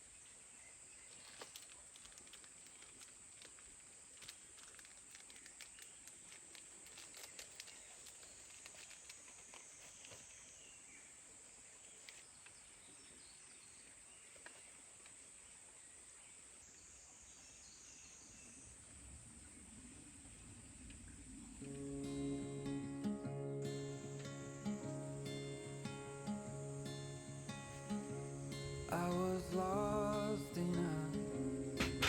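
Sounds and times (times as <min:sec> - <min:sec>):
insects chirring: 0:00.0 - 0:12.8, 0:16.6 - 0:32.0.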